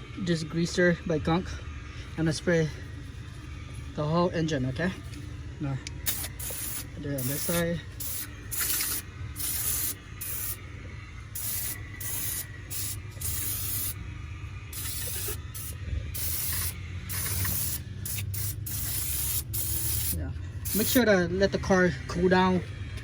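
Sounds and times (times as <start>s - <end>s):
aerosol can spraying: 6.0s - 10.6s, 11.4s - 14.0s, 14.7s - 21.0s.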